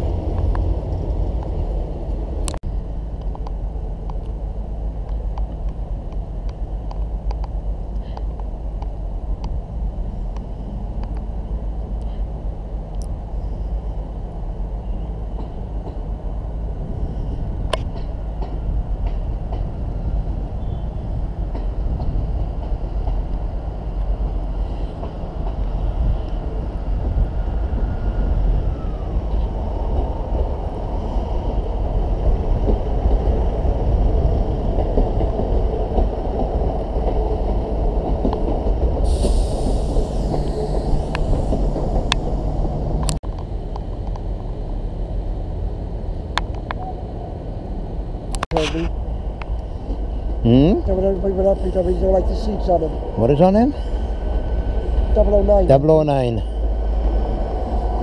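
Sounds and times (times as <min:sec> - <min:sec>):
passenger train rumble: 0:00.0 - 0:58.0
high hiss: 0:39.0 - 0:42.8.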